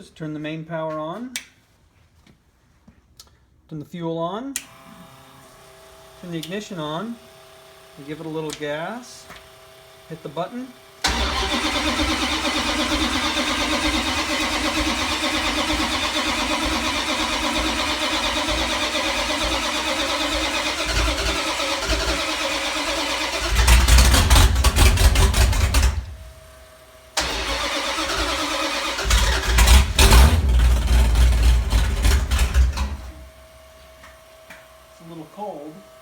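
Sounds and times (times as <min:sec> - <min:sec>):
engine starter cranking: 0:11.0 - 0:26.3, 0:27.2 - 0:33.3.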